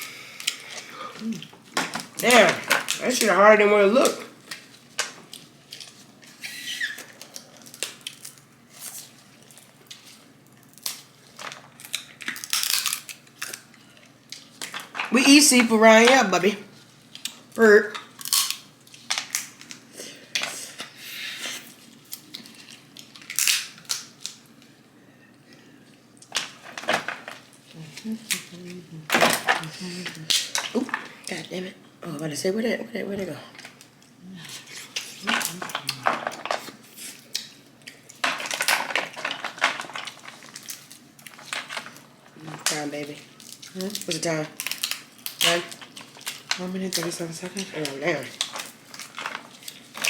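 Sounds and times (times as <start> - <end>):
crab shells cracking: 9.5 - 15.1, 17.1 - 20.5, 21.9 - 24.7, 34.9 - 47.1.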